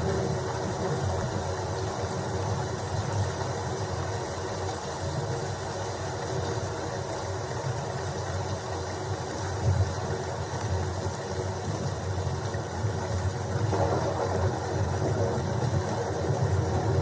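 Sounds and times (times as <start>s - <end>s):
steady rain: 0.0s - 17.0s
low rumble: 12.9s - 17.0s.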